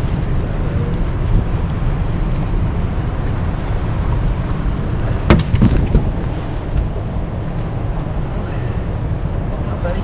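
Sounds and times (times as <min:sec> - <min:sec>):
steady low rumble: 0:00.0 - 0:10.0
sharp knocks: 0:05.3 - 0:06.2.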